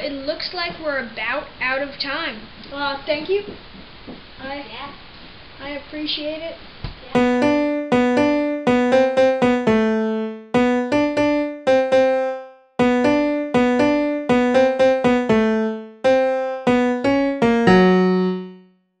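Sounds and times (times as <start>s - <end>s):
piano-like keyboard tune: 7.1s - 18.8s.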